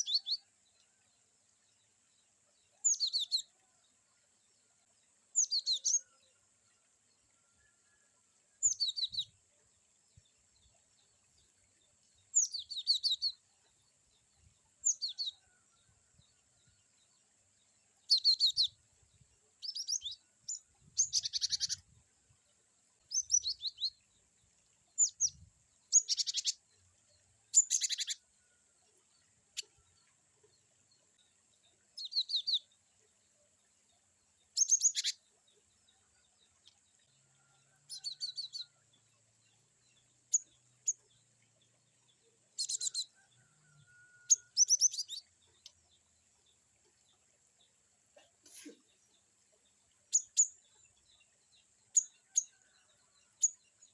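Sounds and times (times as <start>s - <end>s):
bird singing rapid chirps: 21.0s - 21.8s, 25.0s - 26.6s, 27.5s - 28.2s, 34.5s - 35.2s.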